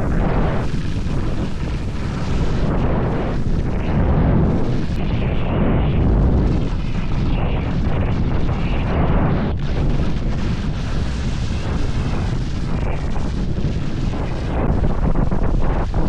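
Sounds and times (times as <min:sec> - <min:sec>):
skis sliding over snow: 0:00.0 - 0:05.4, 0:09.8 - 0:16.0
wind buffeting microphone: 0:00.0 - 0:16.0.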